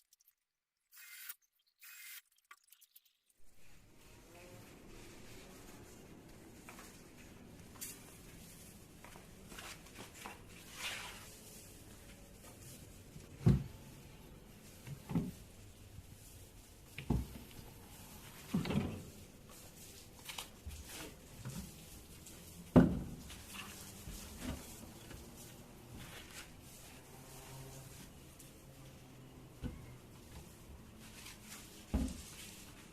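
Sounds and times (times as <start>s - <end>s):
knocks and thumps of cabinet parts: 17.0s - 17.5s, 18.5s - 19.1s, 22.7s - 23.3s.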